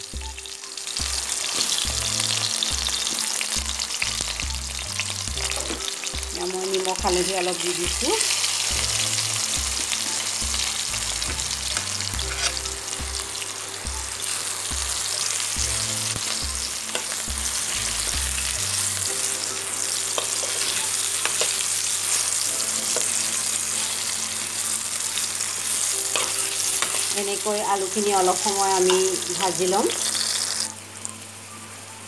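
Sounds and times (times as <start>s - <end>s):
potatoes sizzling in hot oil: 0.0s - 32.0s
spoon knocking and scraping pan: 5.4s - 6.3s, 10.4s - 13.2s, 25.9s - 27.2s.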